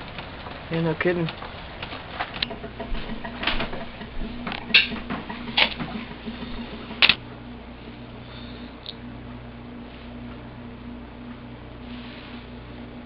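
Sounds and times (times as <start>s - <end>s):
steady low hum: 0.0s - 13.0s
sharp clicks and taps: 1.8s - 6.2s.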